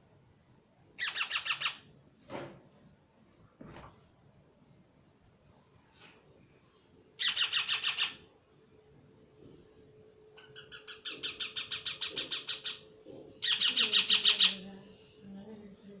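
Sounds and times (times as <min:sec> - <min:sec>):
parrot rapid calls: 0:01.0 - 0:01.8, 0:07.2 - 0:08.2, 0:10.4 - 0:12.8, 0:13.4 - 0:14.6.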